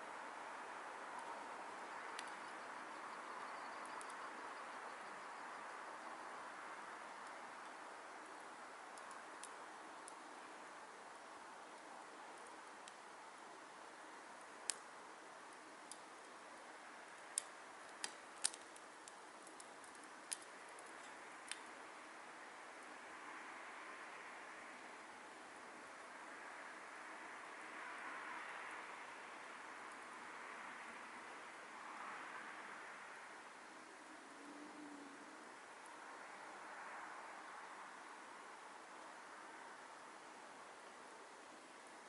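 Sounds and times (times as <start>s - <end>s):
burning wood crackling: 0.4s - 5.5s, 6.1s - 23.0s
wood fire hissing: 6.1s - 34.3s.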